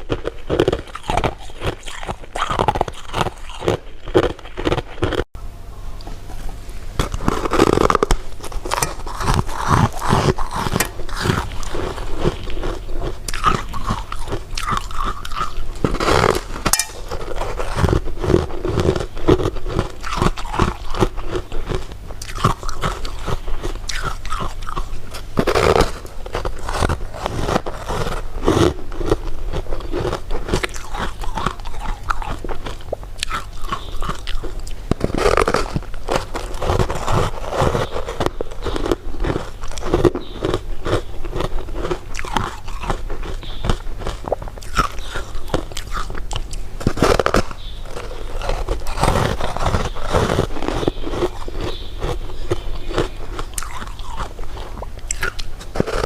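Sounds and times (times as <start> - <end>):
candy crunching: 0.0 - 5.3, 7.0 - 56.0
wet chewing: 0.0 - 5.3, 7.0 - 56.0.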